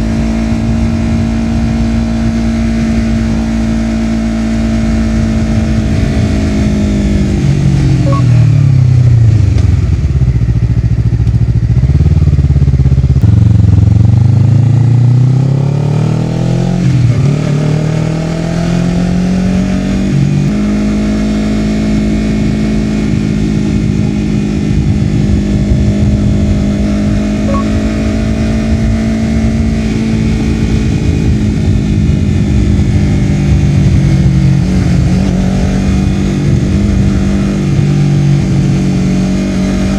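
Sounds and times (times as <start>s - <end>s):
motorcycle engine revving: 0.0s - 39.9s
gear change: 4.5s - 8.7s, 21.8s - 39.9s.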